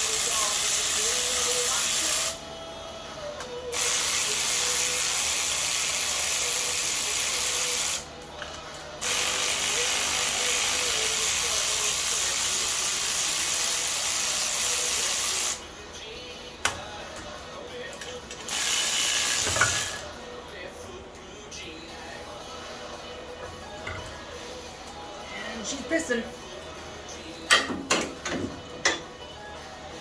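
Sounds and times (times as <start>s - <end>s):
pneumatic air tool hissing: 18.5s - 20.0s.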